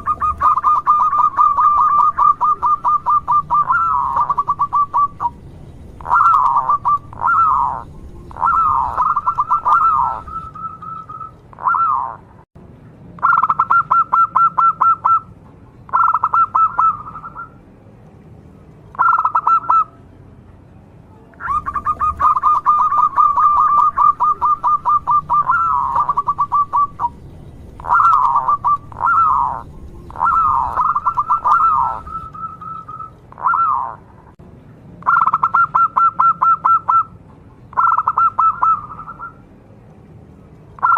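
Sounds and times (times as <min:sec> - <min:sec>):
dove cooing: 0:00.0 - 0:05.4, 0:06.0 - 0:12.2, 0:15.9 - 0:17.6, 0:19.0 - 0:19.9, 0:21.4 - 0:27.2, 0:27.8 - 0:34.1, 0:37.8 - 0:39.4.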